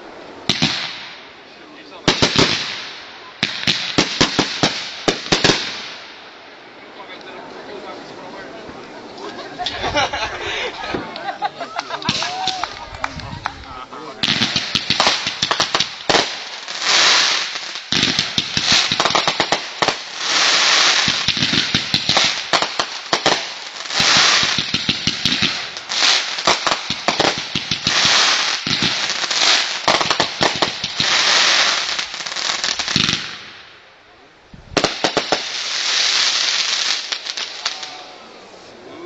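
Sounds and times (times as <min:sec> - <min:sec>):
fireworks popping: 0:00.5 - 0:01.2, 0:02.0 - 0:06.1, 0:10.8 - 0:33.6, 0:34.6 - 0:37.9
fireworks hissing crackle: 0:02.0 - 0:06.7, 0:09.6 - 0:33.8, 0:34.5 - 0:38.8.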